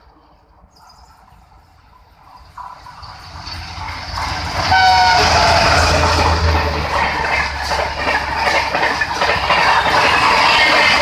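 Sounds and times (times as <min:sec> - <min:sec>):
passenger train passing: 0:00.0 - 0:11.0
train horn blast: 0:04.6 - 0:06.3.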